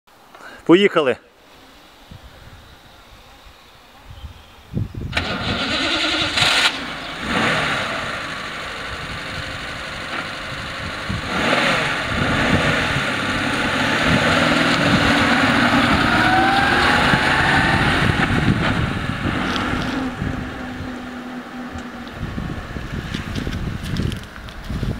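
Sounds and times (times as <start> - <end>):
car engine starting and running: 5.1 - 24.9.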